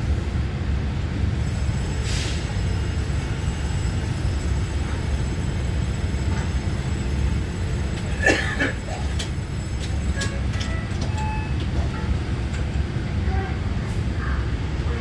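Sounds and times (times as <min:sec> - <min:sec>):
train wheels rumbling on track: 0:00.0 - 0:15.0
train clicks: 0:06.1 - 0:13.2.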